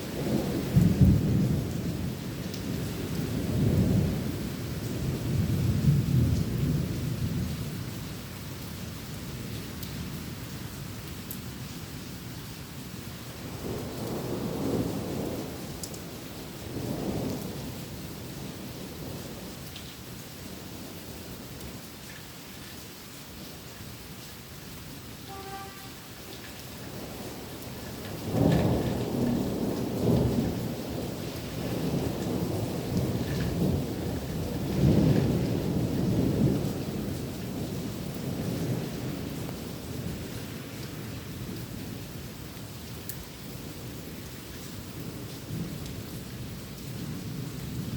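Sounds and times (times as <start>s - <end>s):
steady rain falling: 0.0s - 47.9s
thunder rumbling: 13.5s - 19.6s, 25.2s - 40.6s.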